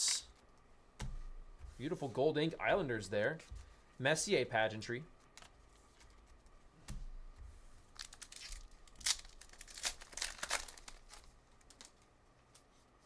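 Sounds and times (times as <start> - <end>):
wrapper tearing and crinkling: 7.9 - 12.0.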